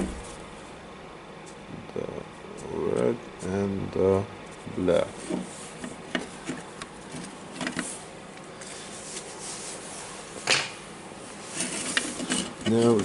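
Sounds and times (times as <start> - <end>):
plastic and metal parts rubbing: 4.5 - 8.0, 11.4 - 13.0.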